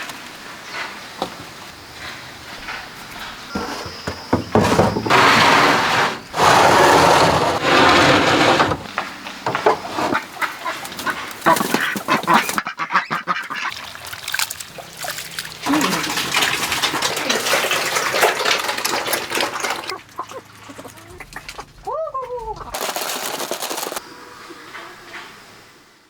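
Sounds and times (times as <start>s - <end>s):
ducks quacking: 10.0s - 22.8s.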